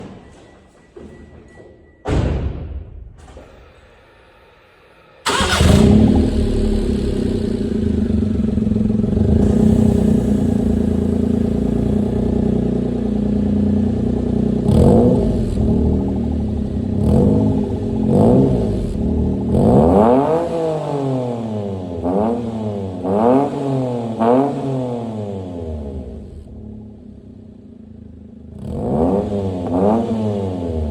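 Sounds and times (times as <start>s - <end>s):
car engine starting and idling: 3.6s - 22.0s
engine revving: 5.2s - 26.8s, 28.4s - 30.9s.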